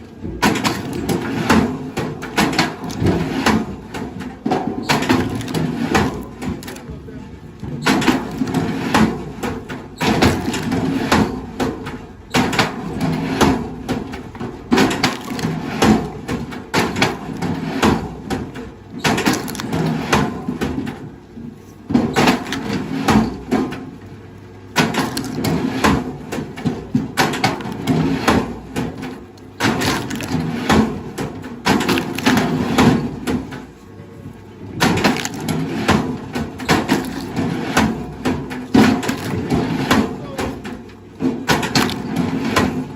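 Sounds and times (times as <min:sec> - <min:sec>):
wood cracking and splintering: 0:00.4 - 0:21.0, 0:21.9 - 0:24.0, 0:24.7 - 0:33.7, 0:34.7 - 0:42.9.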